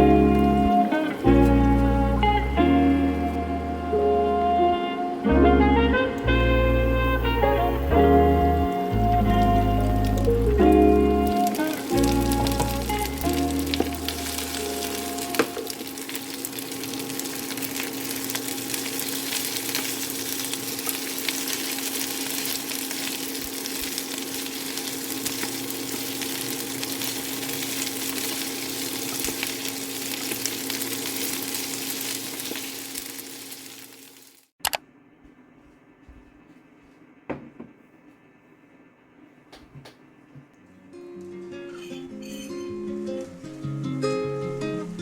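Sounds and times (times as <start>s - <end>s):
food sizzling in a pan: 9.4s - 34.5s.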